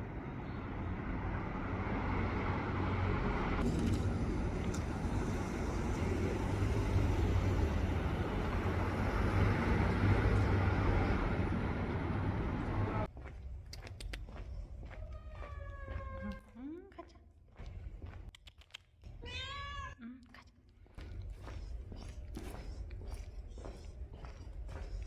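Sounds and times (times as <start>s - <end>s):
low engine hum: 0.0s - 13.7s.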